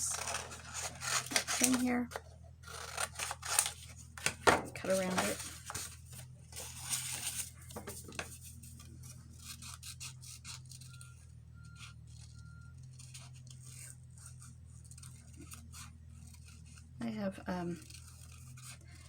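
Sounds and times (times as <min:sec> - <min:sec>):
scissors snipping paper: 0:00.0 - 0:06.0, 0:11.8 - 0:19.0
steady low hum: 0:00.0 - 0:19.0.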